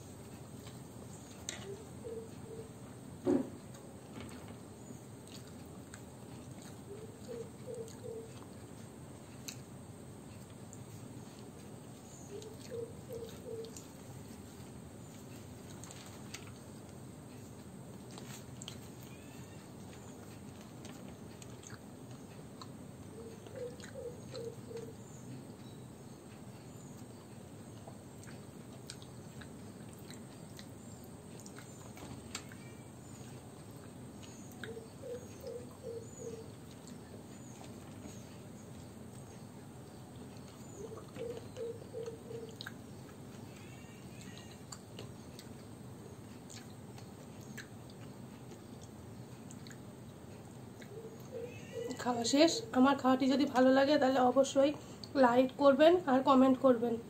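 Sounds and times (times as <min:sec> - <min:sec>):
person chewing food: 0:00.0 - 0:02.9, 0:05.2 - 0:52.0
faint bird chirps: 0:01.1 - 0:02.8, 0:06.9 - 0:08.4, 0:12.0 - 0:13.9, 0:19.0 - 0:20.3, 0:23.1 - 0:27.3, 0:30.8 - 0:33.4, 0:34.2 - 0:44.7, 0:50.8 - 0:52.8.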